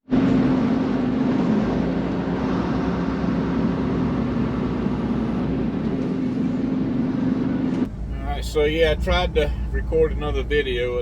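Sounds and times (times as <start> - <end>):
road and cab noise: 0.0 - 11.0
truck engine drone: 0.1 - 11.0
constant low hum: 5.7 - 11.0.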